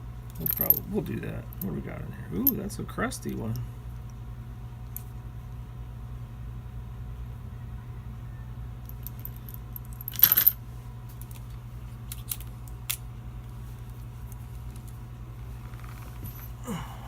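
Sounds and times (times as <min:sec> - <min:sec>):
small metal parts rattling: 0:00.3 - 0:00.9, 0:08.9 - 0:10.6.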